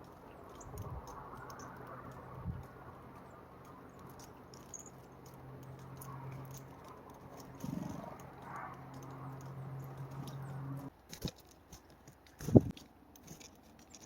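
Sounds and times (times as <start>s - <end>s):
birds pecking at seed: 0.0s - 14.0s
steady low hum: 2.0s - 10.9s.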